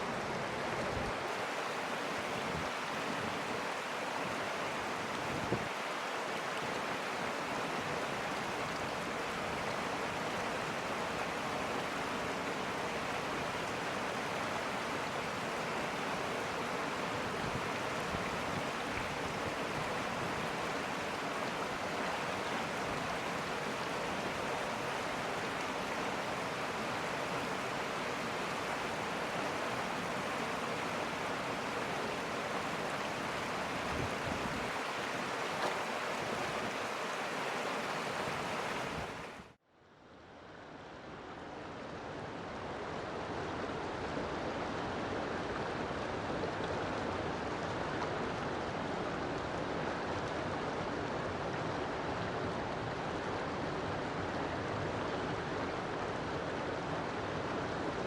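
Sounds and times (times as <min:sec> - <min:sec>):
river water rushing: 0:00.0 - 0:39.6.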